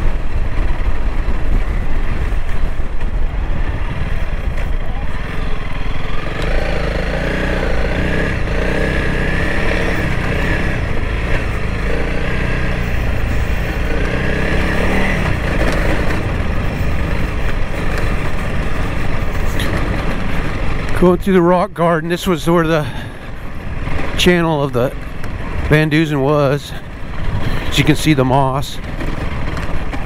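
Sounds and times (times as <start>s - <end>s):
motorcycle engine revving: 0.0s - 21.3s.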